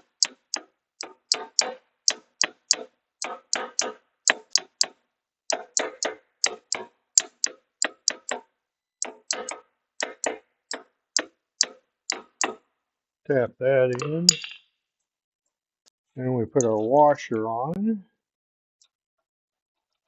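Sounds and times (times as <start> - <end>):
hammer tapping metal: 0.0 - 8.4, 9.0 - 12.6, 13.9 - 14.6.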